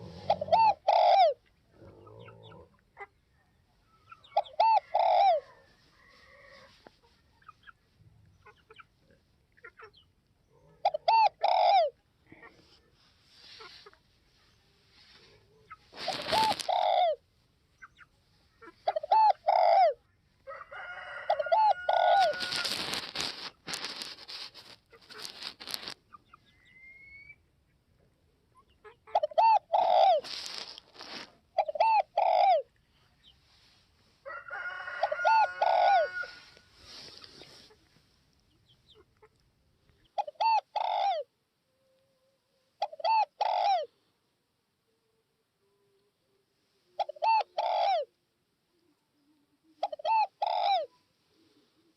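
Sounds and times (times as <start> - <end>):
other bird calling: 0.0 - 1.4, 15.7 - 17.2
dove cooing: 0.0 - 2.7, 4.3 - 6.8, 10.8 - 12.4, 15.9 - 17.2, 18.8 - 20.0, 29.1 - 32.7, 35.0 - 37.6, 40.2 - 41.3, 42.8 - 44.0, 47.0 - 48.1, 49.8 - 51.9
short bursts of noise: 22.0 - 26.0.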